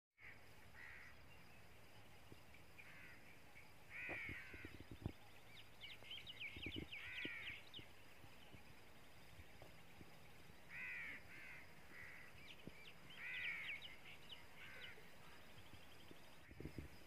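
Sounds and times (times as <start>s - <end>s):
harsh cawing bird calls: 0.2s - 1.2s, 2.8s - 3.3s, 3.9s - 5.0s, 6.8s - 7.7s, 10.7s - 12.4s, 13.1s - 15.4s
high twittering chirps: 0.6s - 9.9s.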